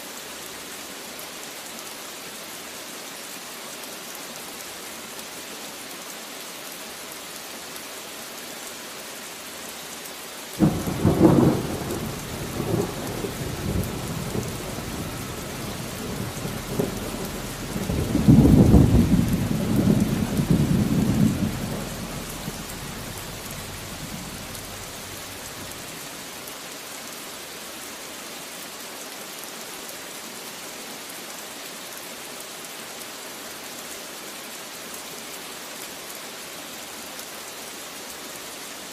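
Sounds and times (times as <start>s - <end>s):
steady rain: 0.0s - 38.9s
thunder rumbling: 10.6s - 26.0s.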